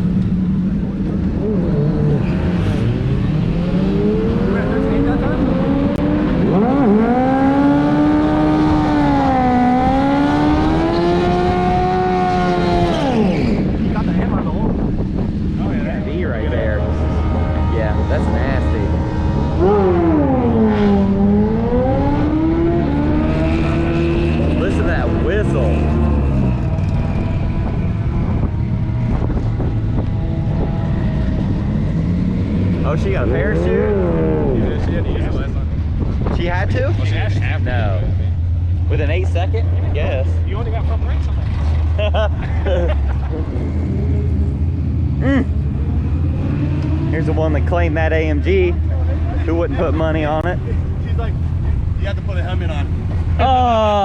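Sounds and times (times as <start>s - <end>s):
wind noise on microphone: 0.0s - 38.9s
drag car engine at full throttle: 0.0s - 54.0s.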